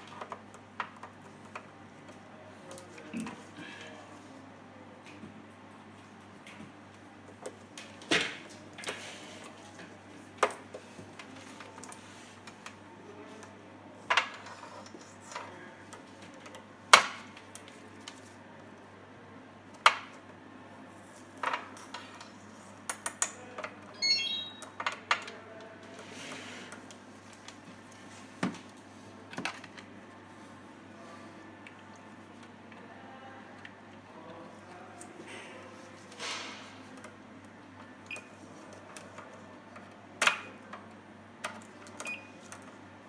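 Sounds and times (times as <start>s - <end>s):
high chirps: 24.0s - 24.6s.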